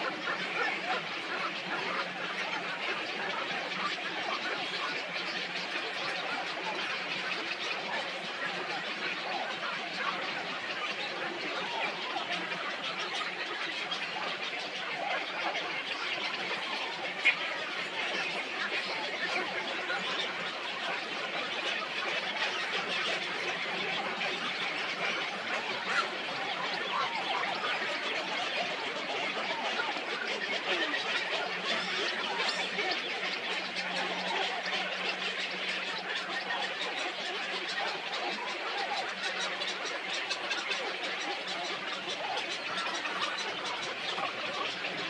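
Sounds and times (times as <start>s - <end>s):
many birds chirping: 0.0s - 45.0s.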